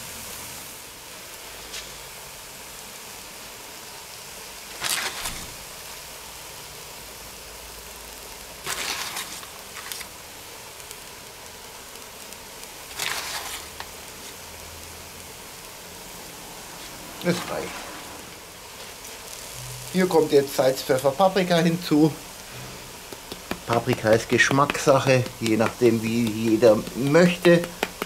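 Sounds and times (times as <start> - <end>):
vegetables sizzling in a pot: 0.0 - 28.0
flour rustling: 4.6 - 6.0, 8.4 - 14.6, 16.4 - 28.0.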